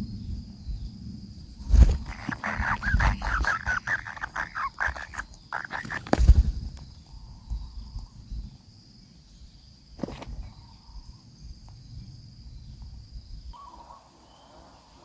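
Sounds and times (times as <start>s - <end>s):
nestlings begging chirps: 1.7s - 7.0s.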